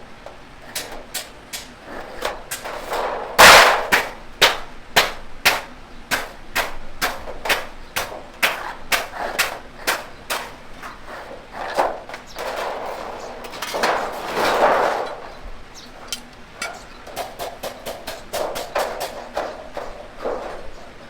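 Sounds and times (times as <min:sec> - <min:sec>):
hammer striking sheet metal: 0:00.8 - 0:10.6, 0:16.1 - 0:19.5.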